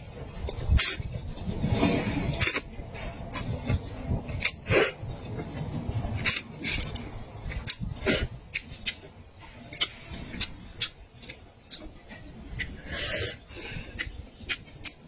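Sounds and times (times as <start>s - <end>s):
person chewing with wet smacks: 6.3s - 9.1s, 9.7s - 12.8s.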